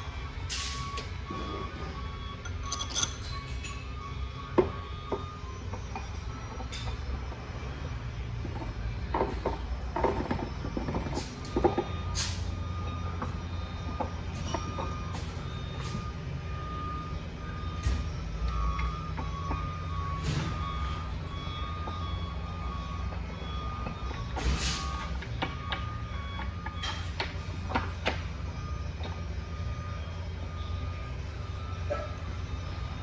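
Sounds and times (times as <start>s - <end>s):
backup alarm beeping: 0.0s - 33.0s
truck engine rumble: 0.0s - 33.0s
metal parts clinking: 2.6s - 3.8s.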